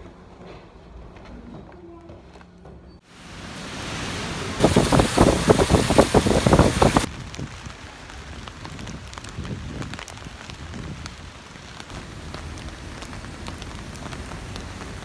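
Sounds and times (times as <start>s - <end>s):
heavy rain pattering: 3.1s - 15.0s
raindrops tapping on umbrella: 4.6s - 15.0s.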